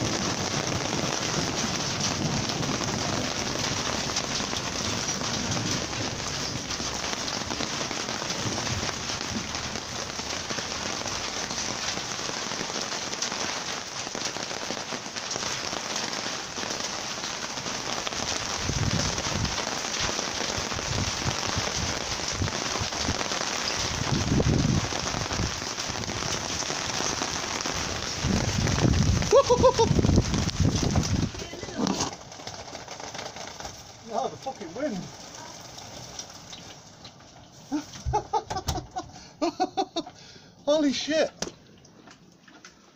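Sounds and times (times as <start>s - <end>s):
low thunder rumbles: 0.0s - 11.9s, 17.8s - 32.2s
heavy rain hissing: 0.0s - 41.3s.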